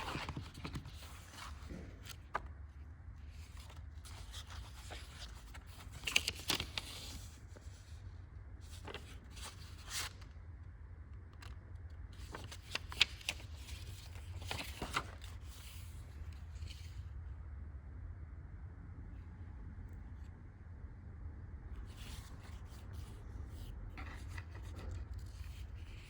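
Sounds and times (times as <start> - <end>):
pages being turned: 0.0 - 2.5, 3.4 - 7.8, 8.6 - 10.2, 11.4 - 17.0, 21.8 - 26.0
paper rustling and crackling: 0.0 - 2.6, 3.2 - 7.9, 8.6 - 10.3, 11.4 - 17.1, 21.8 - 26.0
steady low hum: 0.0 - 26.0.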